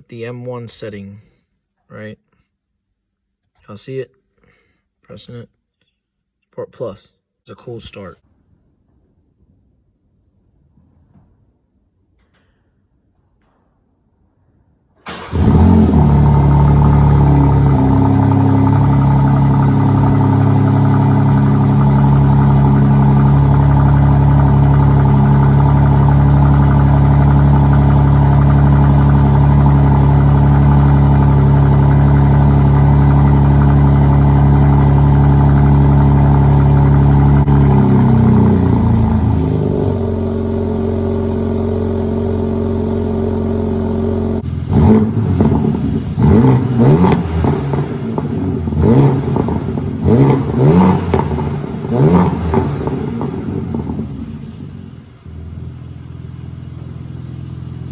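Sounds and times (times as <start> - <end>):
car engine starting and idling: 15.0 - 57.9.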